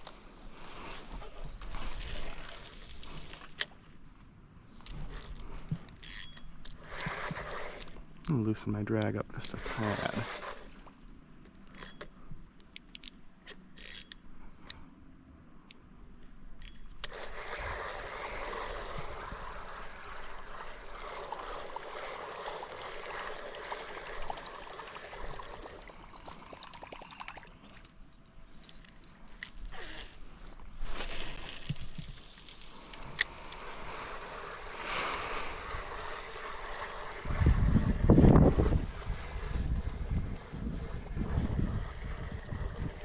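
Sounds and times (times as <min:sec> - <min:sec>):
fishing reel drag clicks: 0:04.8 - 0:08.3, 0:11.6 - 0:14.3, 0:16.6 - 0:19.1
water washing and trickling: 0:17.1 - 0:29.4, 0:30.2 - 0:43.0.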